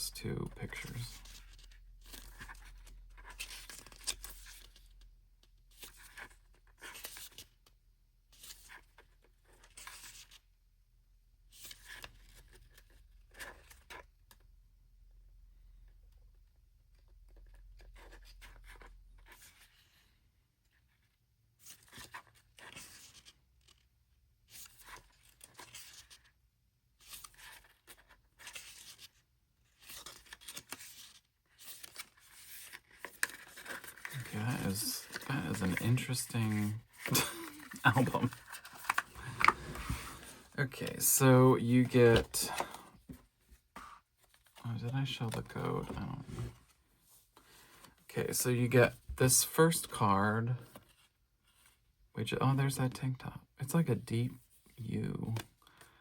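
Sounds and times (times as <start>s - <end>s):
paper and card rustling: 0.4s - 5.0s, 21.6s - 23.9s, 24.5s - 26.3s, 27.0s - 48.1s.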